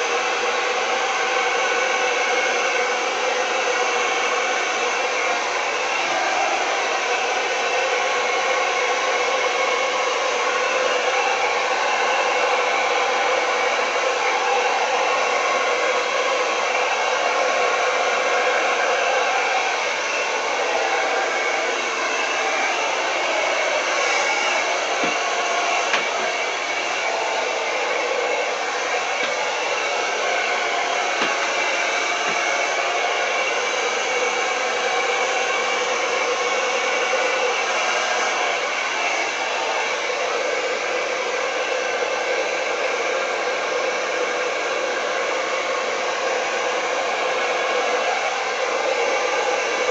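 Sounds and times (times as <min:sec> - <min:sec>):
blow dryer running: 0:00.0 - 0:49.9.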